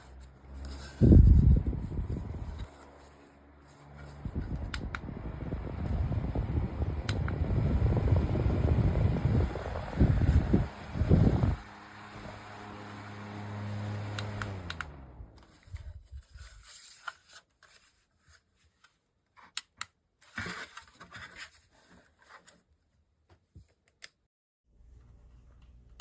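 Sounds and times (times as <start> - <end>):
desk fan humming: 0.0 - 15.8.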